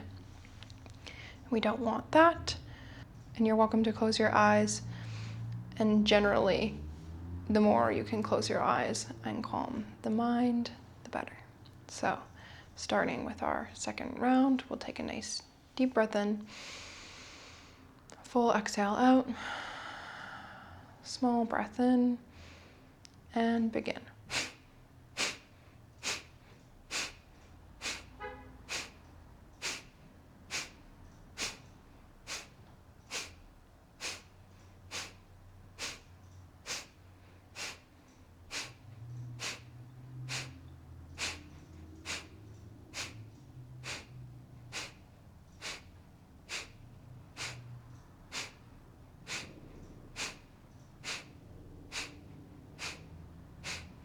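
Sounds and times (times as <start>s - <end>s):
forceful exhales through nose: 24.3s - 24.6s, 25.2s - 27.2s, 27.8s - 29.0s, 29.6s - 30.8s, 31.4s - 33.4s, 34.0s - 34.3s, 34.9s - 37.9s, 38.5s - 54.0s.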